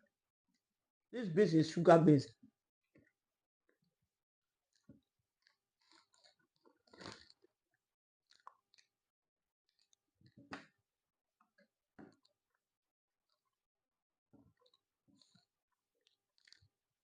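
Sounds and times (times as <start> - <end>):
person chewing food: 4.7 - 9.1, 9.7 - 10.8, 14.3 - 17.0.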